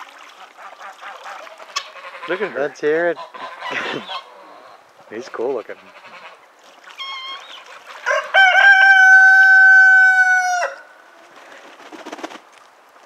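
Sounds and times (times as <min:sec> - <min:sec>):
rooster crowing: 0:08.0 - 0:11.0.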